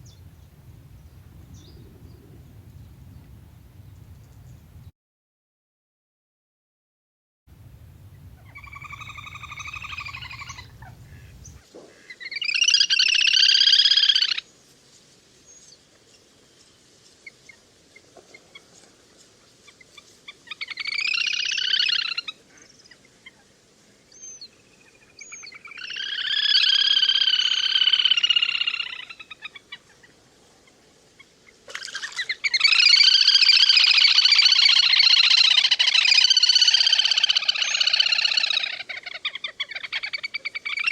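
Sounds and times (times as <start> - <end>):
faint low hum: 0.0 - 4.9, 7.5 - 11.6
little grebe whinnying trills: 8.4 - 11.6, 31.7 - 40.9.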